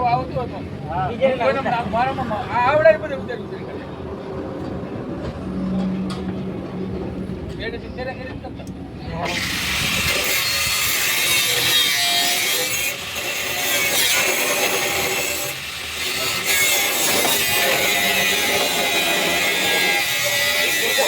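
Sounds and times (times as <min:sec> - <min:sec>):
power tool whining on metal: 0:09.2 - 0:21.0.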